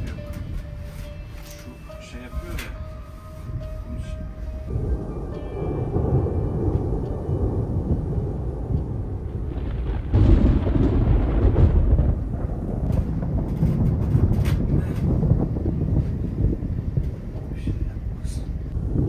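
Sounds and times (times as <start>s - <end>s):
thunder rumbling: 0.0s - 19.0s.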